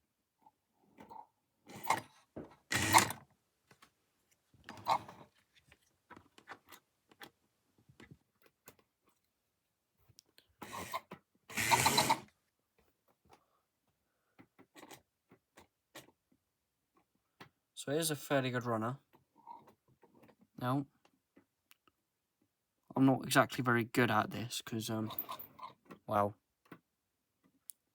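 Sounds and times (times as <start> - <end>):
model train motor and gears clicking: 2.7 - 3.2, 10.6 - 12.3.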